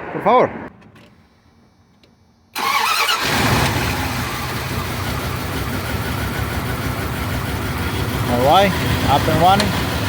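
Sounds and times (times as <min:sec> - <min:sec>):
engine cranking and starting: 0:02.6 - 0:06.7
engine idling: 0:02.6 - 0:10.0.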